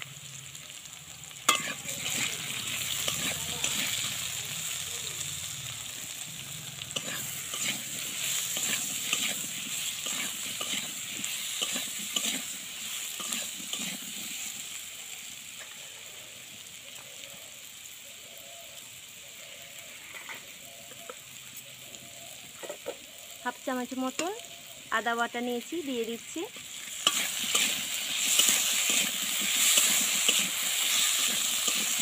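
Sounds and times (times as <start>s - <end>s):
vegetables sizzling in oil: 0.0s - 32.0s
metal spatula scraping pan: 1.5s - 4.1s, 7.0s - 12.5s, 26.9s - 32.0s.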